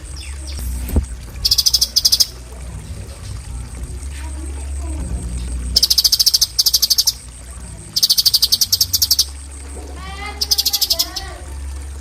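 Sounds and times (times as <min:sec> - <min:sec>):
steady low hum: 0:00.0 - 0:12.0
bird rapid high notes: 0:05.4 - 0:09.4, 0:10.0 - 0:11.3
bird lower wavering call: 0:05.7 - 0:07.3, 0:07.9 - 0:09.4, 0:10.2 - 0:11.7.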